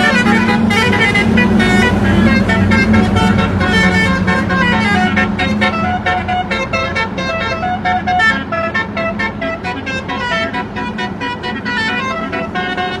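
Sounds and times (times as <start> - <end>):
truck musical horn playing tune: 0.0 - 13.0.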